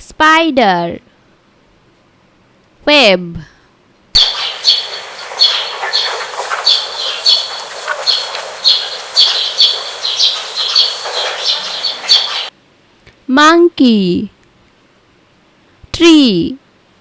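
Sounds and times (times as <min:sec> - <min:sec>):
short high chirps: 0:04.2 - 0:12.5
steady hiss: 0:04.2 - 0:12.5.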